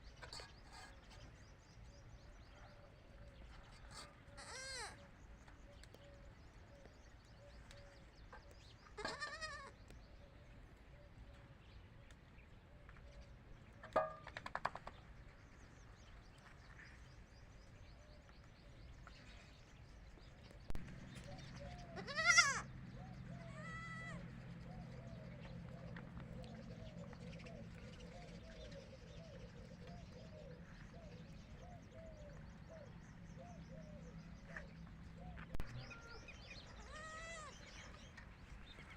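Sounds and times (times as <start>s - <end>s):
goat kids bleating: 4.3s - 5.0s, 9.0s - 9.8s, 21.8s - 22.7s, 23.4s - 24.3s, 35.7s - 37.7s.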